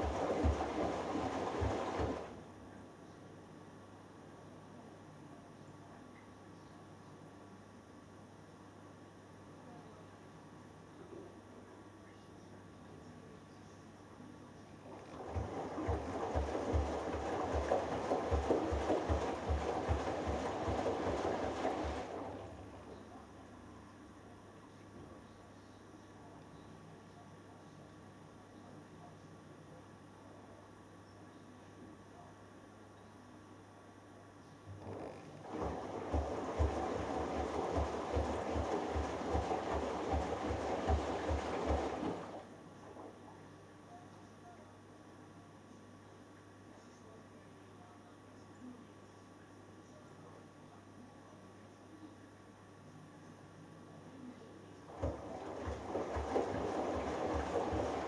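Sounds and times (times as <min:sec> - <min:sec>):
wet laundry and water sloshing: 0:00.0 - 0:02.4, 0:14.9 - 0:23.2, 0:34.8 - 0:43.2, 0:54.9 - 0:58.0
washing machine drum turning: 0:54.9 - 0:58.0.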